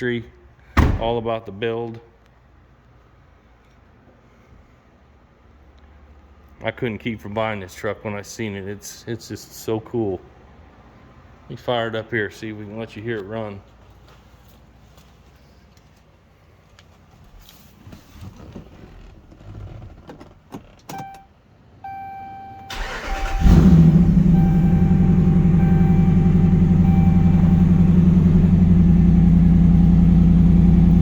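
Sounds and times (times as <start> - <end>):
dashboard warning chime: 20.9 - 28.7
engine cranking and idling: 22.7 - 31.0.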